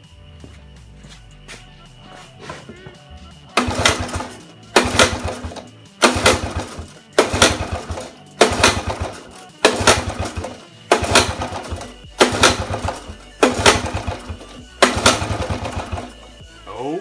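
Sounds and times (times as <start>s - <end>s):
small engine pull-starting: 3.5s - 16.4s.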